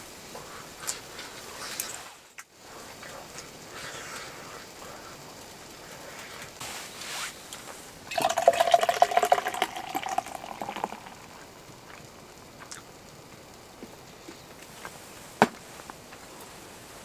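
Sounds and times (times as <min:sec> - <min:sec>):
liquid pouring: 0:08.1 - 0:11.4.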